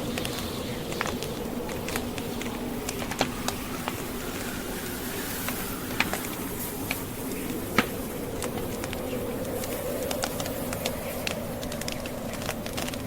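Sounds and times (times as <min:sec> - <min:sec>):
blizzard wind rushing: 0:00.0 - 0:13.0
logs crackling in a fireplace: 0:00.0 - 0:13.0.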